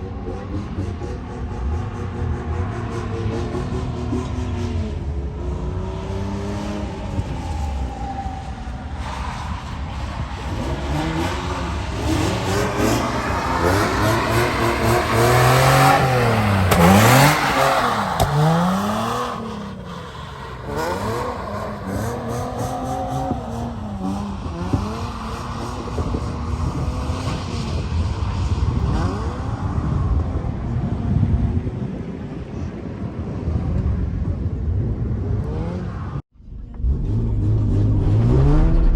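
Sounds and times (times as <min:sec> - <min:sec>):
car engine revving: 0:00.0 - 0:29.9, 0:35.4 - 0:38.9
rushing noise: 0:36.4 - 0:38.9.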